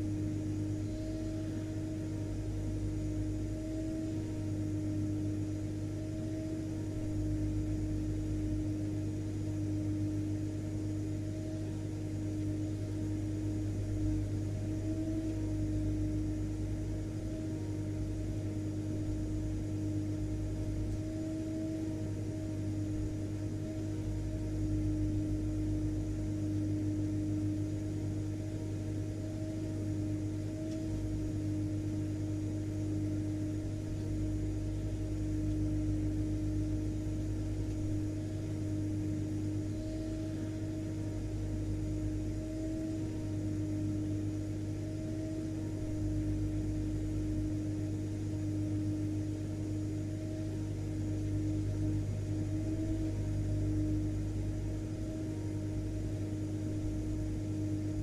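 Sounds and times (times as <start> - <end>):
vacuum cleaner running: 0.0 - 11.6, 29.1 - 58.0.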